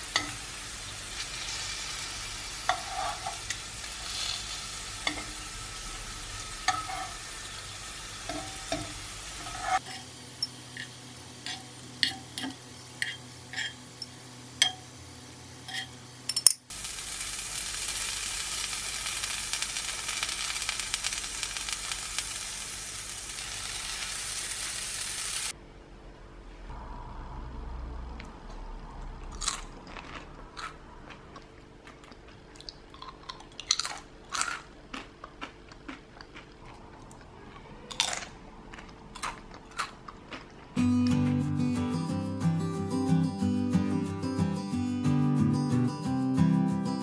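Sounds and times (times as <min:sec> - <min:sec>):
potato slices sizzling in pan: 0:00.0 - 0:16.1, 0:16.7 - 0:25.5
metal tongs clicking on pan: 0:09.9 - 0:14.8.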